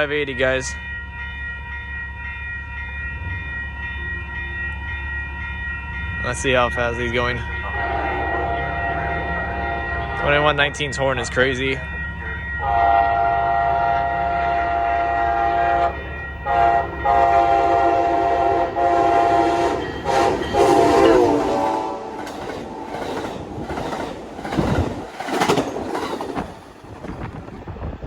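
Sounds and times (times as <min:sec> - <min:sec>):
train rumbling with wheel clatter: 0:00.0 - 0:28.0
locomotive air horn blasts: 0:07.6 - 0:10.4, 0:12.6 - 0:22.3.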